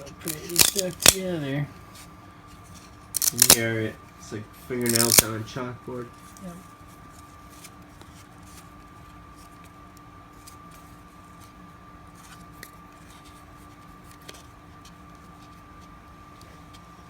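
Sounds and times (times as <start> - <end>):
steady background hum: 0.0 - 17.0
cards rustling and ticking: 0.2 - 1.3, 2.6 - 3.7, 4.8 - 5.4.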